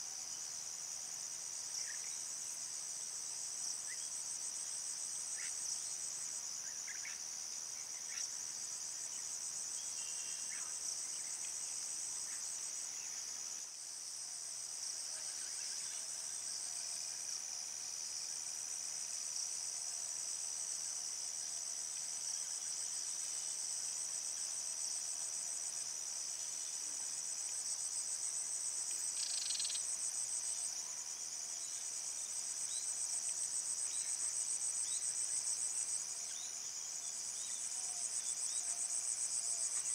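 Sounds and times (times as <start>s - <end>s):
crickets trilling: 26.1s - 39.9s.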